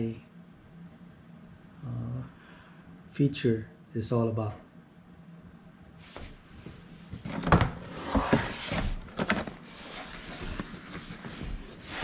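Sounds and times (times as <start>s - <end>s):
cardboard scraping and rustling: 7.2s - 12.0s.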